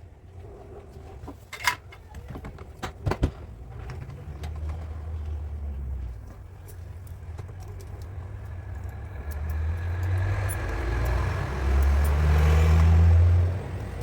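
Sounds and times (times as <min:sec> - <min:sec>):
vehicle engine humming: 0:03.5 - 0:14.0.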